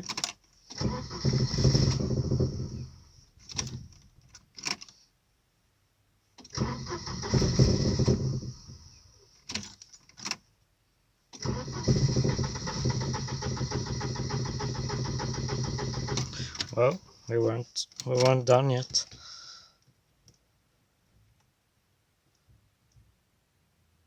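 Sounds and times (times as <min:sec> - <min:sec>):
car engine stalling and restarting: 0:00.7 - 0:03.8, 0:06.4 - 0:09.1, 0:11.4 - 0:16.8.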